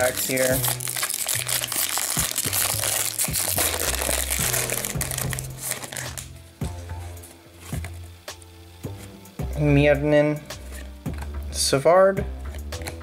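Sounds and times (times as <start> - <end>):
foil wrapper tearing and crinkling: 0.0 - 6.4
background music: 0.0 - 13.0.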